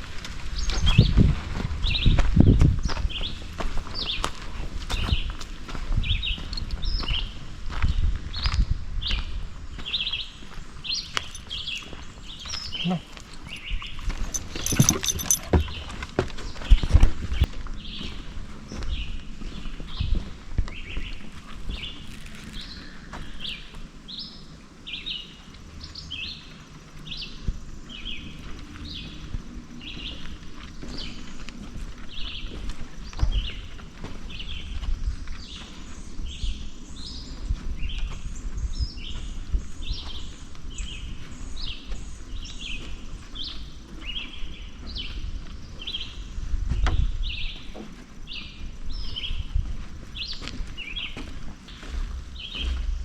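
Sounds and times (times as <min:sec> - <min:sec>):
birds chirping: 0:09.8 - 0:16.0, 0:47.2 - 0:53.0
low rumble: 0:51.6 - 0:53.0.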